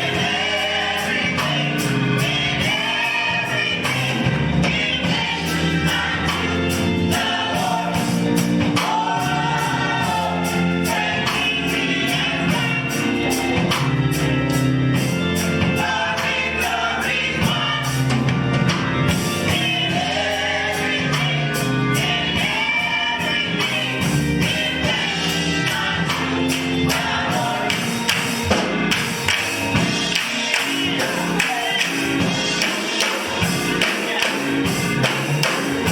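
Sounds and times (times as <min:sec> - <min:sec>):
gospel choir singing: 0:00.0 - 0:35.9
tambourine beat: 0:19.2 - 0:35.9.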